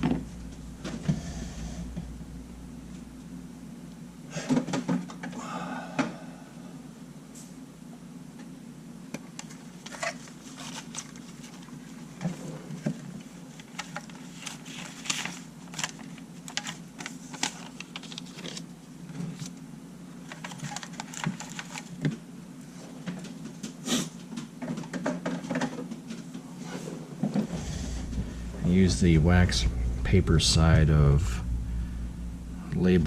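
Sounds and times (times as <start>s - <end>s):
low hum: 0.0s - 4.3s, 27.4s - 33.0s.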